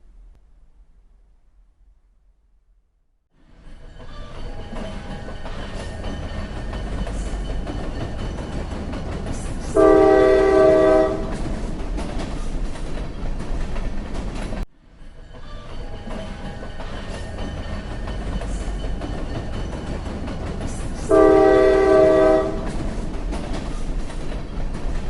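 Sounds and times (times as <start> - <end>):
train running on track: 3.4 - 25.0
train horn: 9.7 - 11.4, 21.0 - 22.8.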